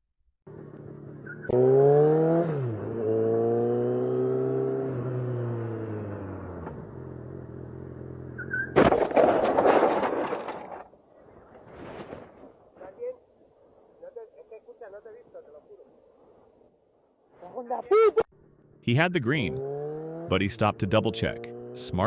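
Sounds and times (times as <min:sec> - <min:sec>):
motorcycle engine revving: 0:00.5 - 0:08.5, 0:18.7 - 0:22.0
car crashing into motorcycle: 0:08.6 - 0:10.9.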